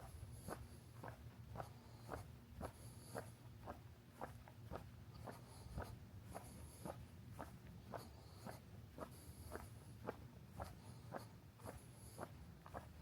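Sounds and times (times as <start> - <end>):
footsteps walking: 0.0 - 13.0.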